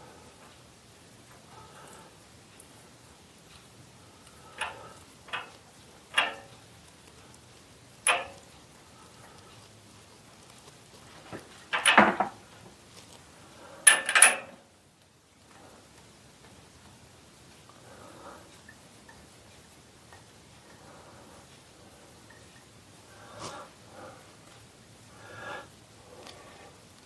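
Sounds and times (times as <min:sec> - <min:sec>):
hard objects knocking and clinking: 0:11.3 - 0:12.4.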